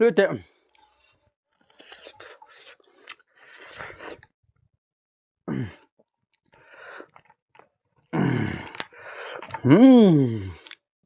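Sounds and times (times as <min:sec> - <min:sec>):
person chewing: 0:00.7 - 0:04.3, 0:06.4 - 0:09.6, 0:10.5 - 0:10.8.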